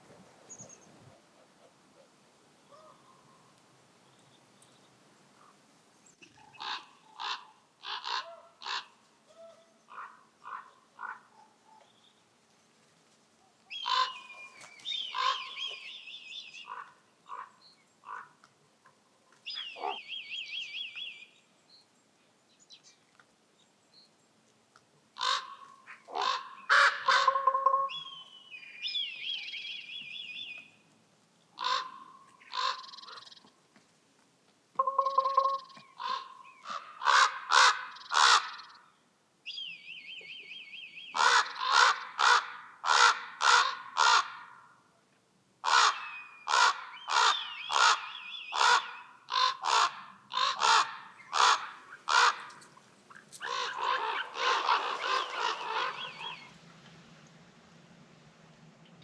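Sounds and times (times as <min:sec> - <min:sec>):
ravens croaking and rattling: 0:06.4 - 0:09.0, 0:25.2 - 0:27.5, 0:48.6 - 0:56.4.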